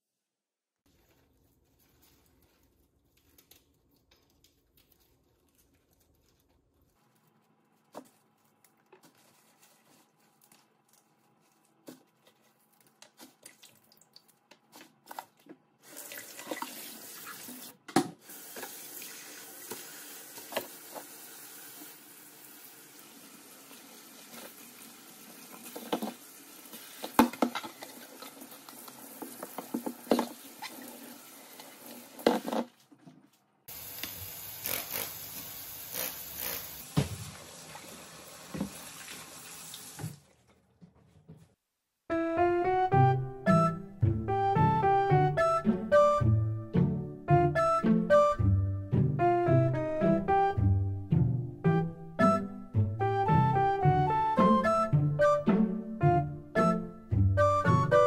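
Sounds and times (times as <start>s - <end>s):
tap running into sink: 38.4s - 39.2s.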